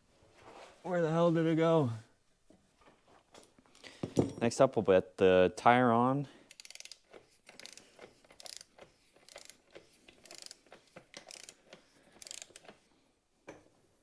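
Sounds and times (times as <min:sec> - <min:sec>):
ratchet wrench clicking: 0:06.5 - 0:12.7.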